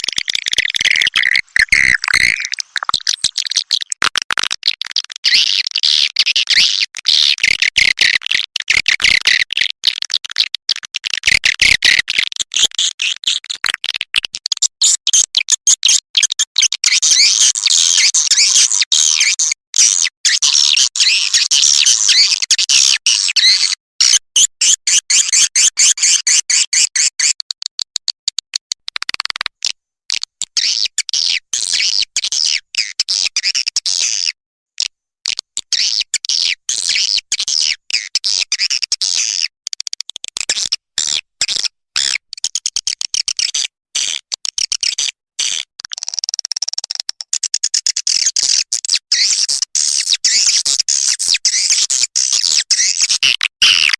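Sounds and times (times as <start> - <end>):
recorded swiftlet chirps: 0.0 - 4.0.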